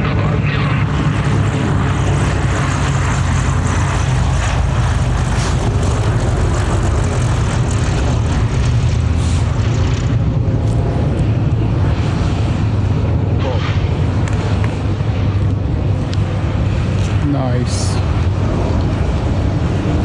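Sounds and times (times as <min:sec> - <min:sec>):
aircraft engine drone: 0:00.0 - 0:20.0.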